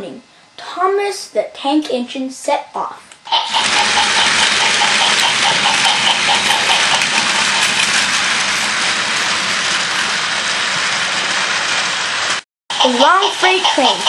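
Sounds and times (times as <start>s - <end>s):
toy train whirring rattle: 3.3s - 14.0s.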